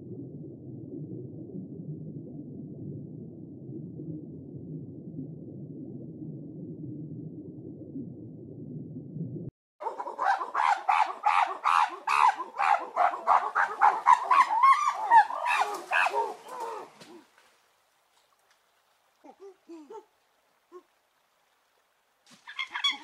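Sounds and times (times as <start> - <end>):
low underwater rumble: 0.0 - 9.5
macaques calling: 9.8 - 17.2, 22.5 - 23.0.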